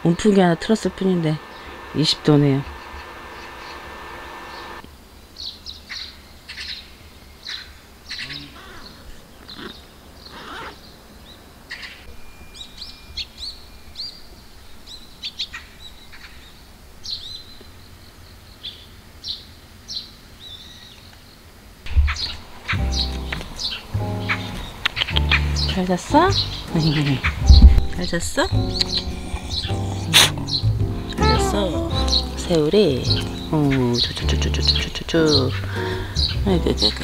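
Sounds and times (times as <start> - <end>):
low steady hum: 0.0 - 5.2, 21.9 - 37.0
small birds chirping: 1.2 - 37.0
thump: 27.5 - 27.9.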